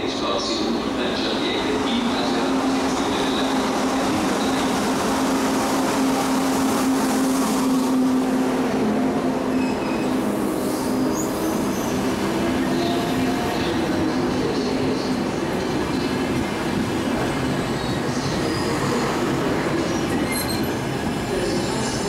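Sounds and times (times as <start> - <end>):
train low hum: 0.0 - 22.0
rumble of train carriages: 8.7 - 22.0
high-pitched wheel squeals: 20.1 - 20.8.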